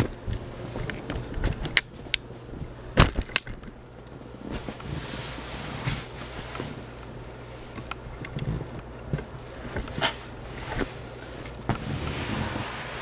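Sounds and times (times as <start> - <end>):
ceiling fan motor hum: 0.0 - 13.0
soft rushing hiss: 9.2 - 13.0.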